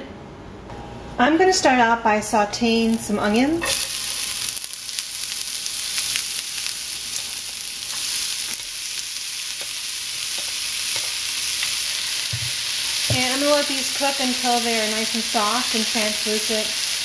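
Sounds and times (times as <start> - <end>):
onions sizzling in oil: 2.8 - 17.0.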